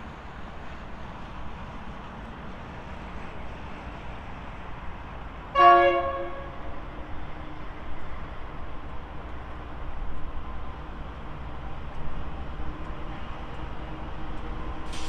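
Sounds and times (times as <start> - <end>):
locomotive horn blast: 5.5 - 6.8.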